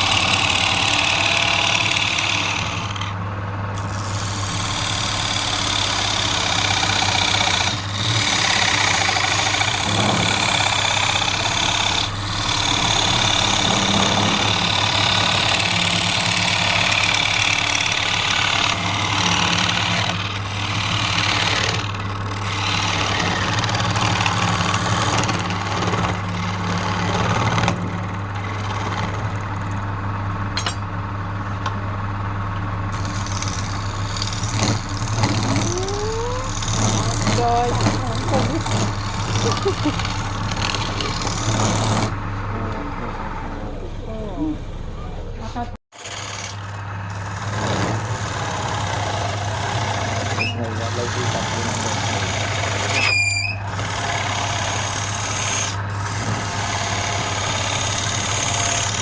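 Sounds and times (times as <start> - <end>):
turning tool cutting wood: 0.0 - 30.8, 32.9 - 43.6, 45.9 - 59.0
wood lathe motor hum: 0.0 - 59.0.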